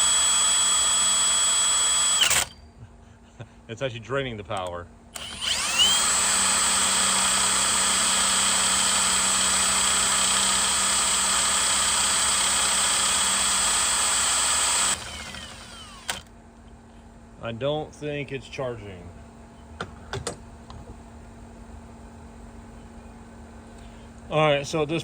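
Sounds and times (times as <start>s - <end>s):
power drill whining: 0.0s - 2.7s, 5.2s - 16.3s.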